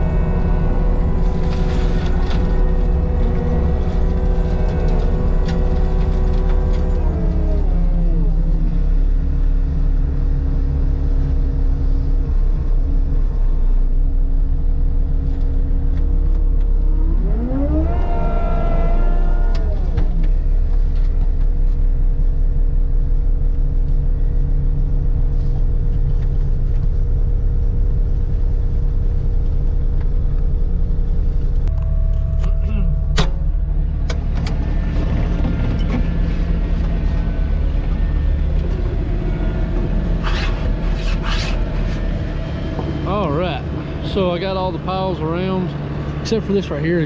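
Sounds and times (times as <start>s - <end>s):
rising whine: 0.0s - 11.6s, 16.0s - 21.8s, 28.7s - 47.0s
diesel engine running under load: 0.0s - 47.0s.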